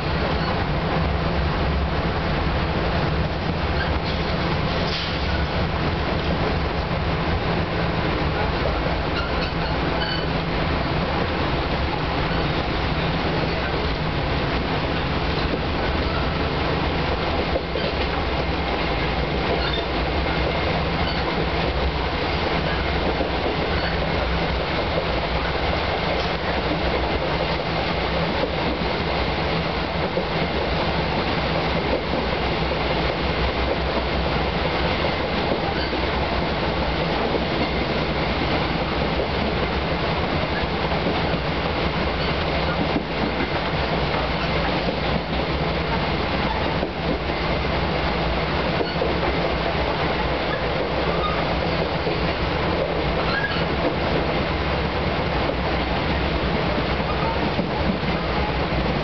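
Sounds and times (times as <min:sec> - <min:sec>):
train wheels rumbling on track: 0:00.0 - 0:59.0
wheels clicking over rail joints: 0:11.7 - 0:47.6.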